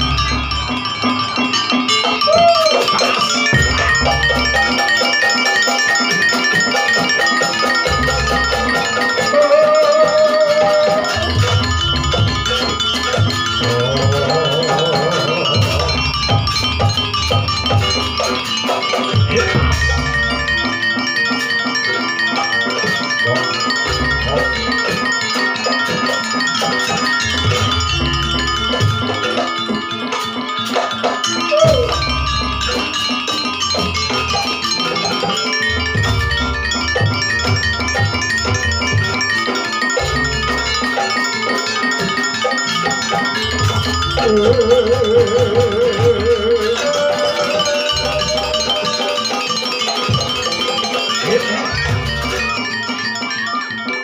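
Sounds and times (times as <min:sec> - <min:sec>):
steady drum beat: 0:00.0 - 0:21.7, 0:22.8 - 0:42.3, 0:43.0 - 0:52.6
mallet percussion ringing: 0:00.0 - 0:54.0
metallophones playing melody: 0:00.0 - 0:54.0
low drum beats: 0:03.5 - 0:04.8.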